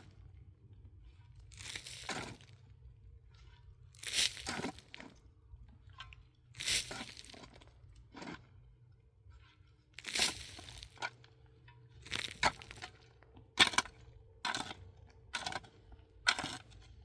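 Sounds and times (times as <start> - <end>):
hand tool digging into snow: 16.3 - 16.7.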